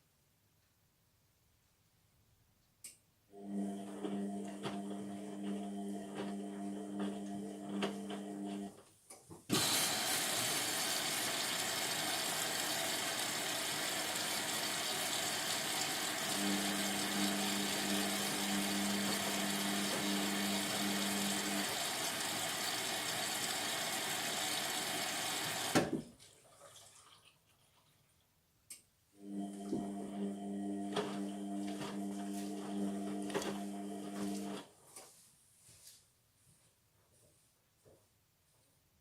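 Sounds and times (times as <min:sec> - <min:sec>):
water rushing into washing machine: 0:09.5 - 0:28.0, 0:29.2 - 0:34.7
drum motor humming: 0:09.6 - 0:25.8.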